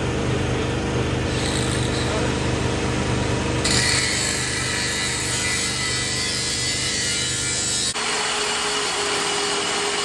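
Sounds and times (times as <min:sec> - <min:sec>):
power tool grinding metal: 0:01.3 - 0:02.3, 0:03.6 - 0:10.0.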